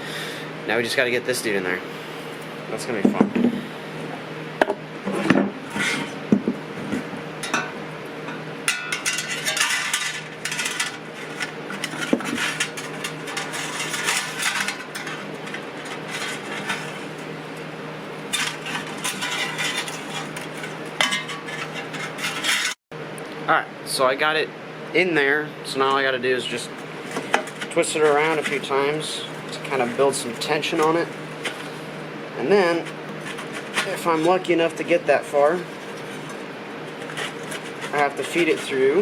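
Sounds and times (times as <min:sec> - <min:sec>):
metal spring clinking and scraping: 0:07.4 - 0:17.0, 0:18.3 - 0:22.8.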